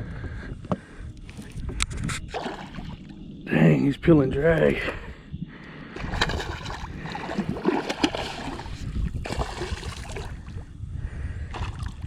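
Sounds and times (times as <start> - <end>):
water sloshing and splashing: 1.2 - 3.4, 6.0 - 10.7, 11.5 - 12.0.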